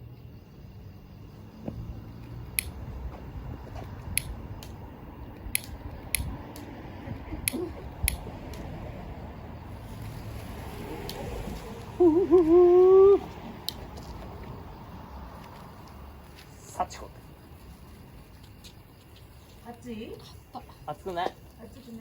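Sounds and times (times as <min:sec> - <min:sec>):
pocket lighter clicking: 0:04.2 - 0:04.8, 0:05.4 - 0:06.6, 0:07.4 - 0:08.6.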